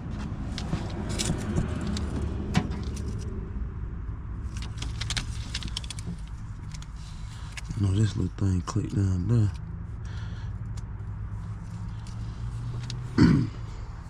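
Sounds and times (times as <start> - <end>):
truck engine cranking: 0.5 - 3.2
metallic clicks and rattles: 4.5 - 7.7.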